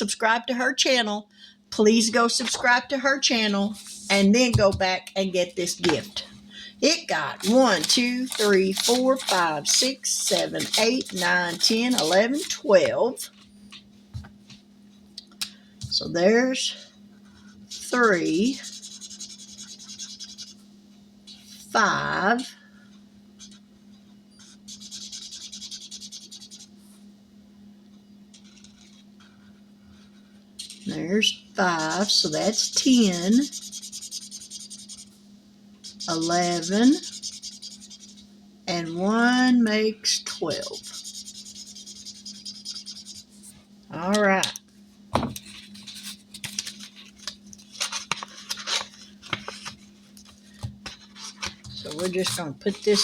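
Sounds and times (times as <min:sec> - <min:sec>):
faint steady hum: 0:00.0 - 0:53.0
pen scribbling on paper: 0:07.1 - 0:12.7, 0:17.7 - 0:20.6, 0:24.4 - 0:26.7, 0:31.6 - 0:35.1, 0:35.8 - 0:38.2, 0:40.2 - 0:43.4, 0:51.0 - 0:53.0
paper rustling and scraping: 0:07.3 - 0:12.7, 0:45.4 - 0:53.0.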